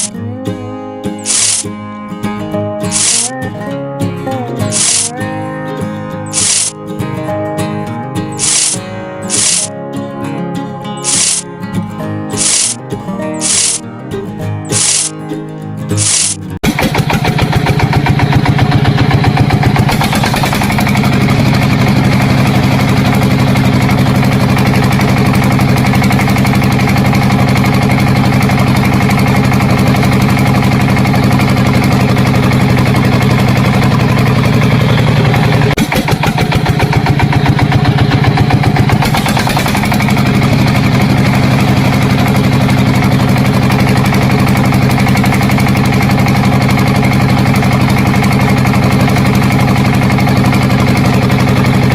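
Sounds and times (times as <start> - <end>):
engine idling: 1.2 - 1.6, 2.9 - 3.4, 4.6 - 5.2, 6.3 - 6.7, 8.3 - 9.7, 11.0 - 11.4, 12.3 - 12.8, 13.4 - 13.8, 14.7 - 15.1, 15.9 - 51.9.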